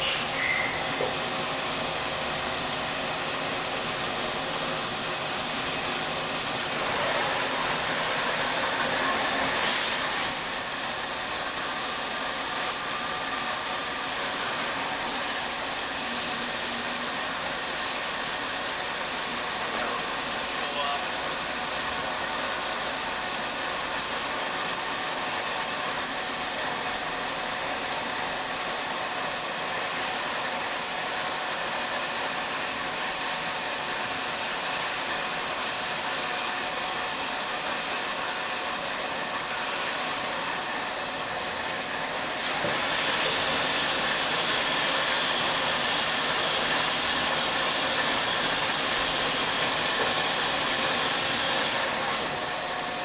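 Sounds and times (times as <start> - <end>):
higher machine whine: 0.0 - 2.5
machining center whirring hiss: 0.0 - 26.2, 32.5 - 53.0.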